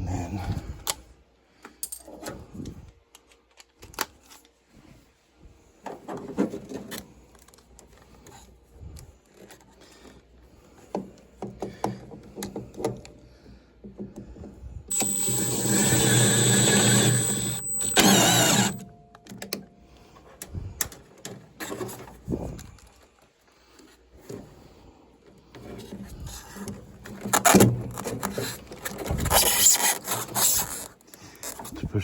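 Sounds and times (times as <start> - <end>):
cordless drill motor whining: 14.9 - 18.9
parts clicking and knocking: 14.9 - 19.6.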